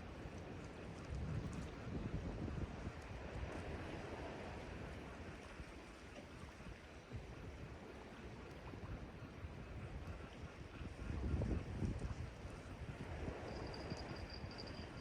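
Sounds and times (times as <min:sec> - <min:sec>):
wind rumbling on microphone: 0:00.0 - 0:05.8, 0:06.4 - 0:15.0
sea waves washing ashore: 0:02.7 - 0:15.0.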